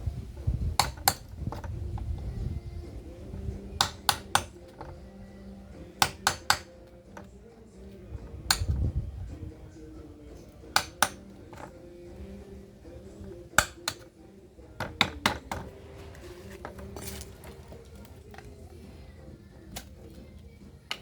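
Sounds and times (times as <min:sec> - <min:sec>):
small hard objects clinking: 0:14.8 - 0:18.7.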